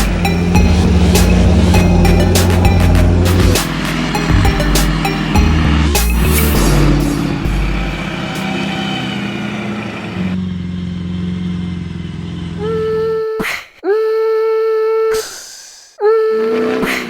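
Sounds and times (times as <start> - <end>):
steady pitched tone: 0.0 - 9.3
diesel truck engine running: 0.0 - 12.9.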